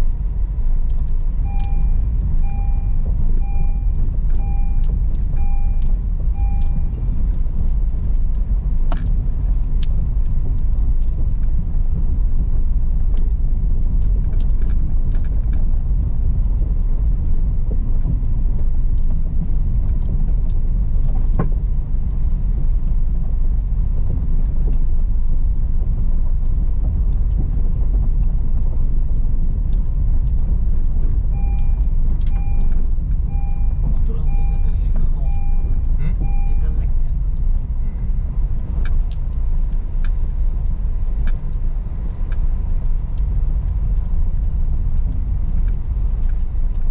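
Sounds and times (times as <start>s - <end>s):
car engine and tyres rumbling: 0.0s - 46.9s
sharp clicks and knocks: 0.8s - 11.6s.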